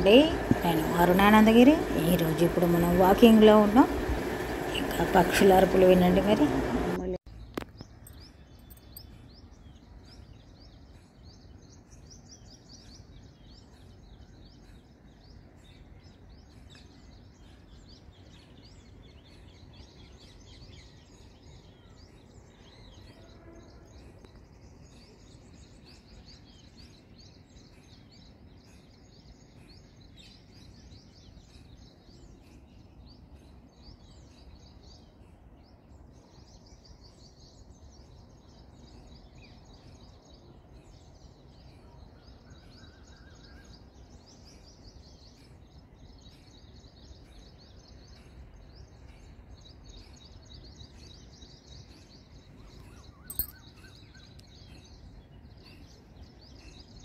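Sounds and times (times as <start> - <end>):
low steady rumble: 0.0 - 7.2
birds chirping: 0.0 - 42.5, 49.0 - 57.0.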